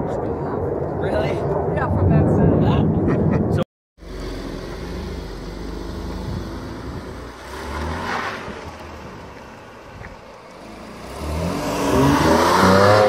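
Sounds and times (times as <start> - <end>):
car engine revving and accelerating: 4.0 - 13.0.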